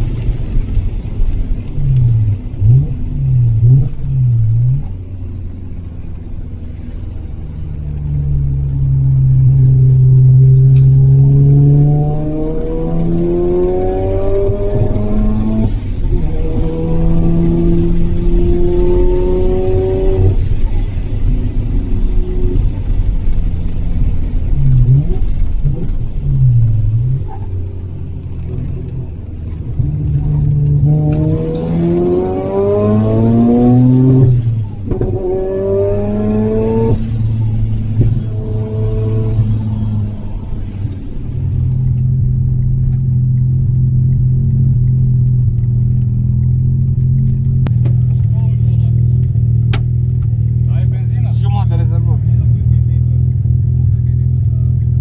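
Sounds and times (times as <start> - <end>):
rotary engine revving: 6.6 - 43.9.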